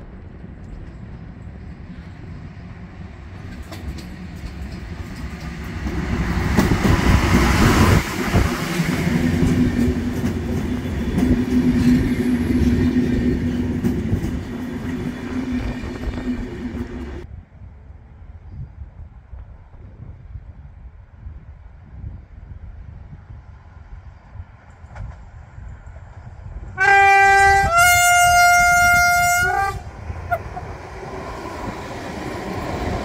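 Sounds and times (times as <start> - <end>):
locomotive passing loudly: 0.0 - 17.2, 26.1 - 33.0
train coaches rolling by: 0.0 - 17.3, 23.4 - 33.0
wheels clicking over rail joints: 3.2 - 7.6.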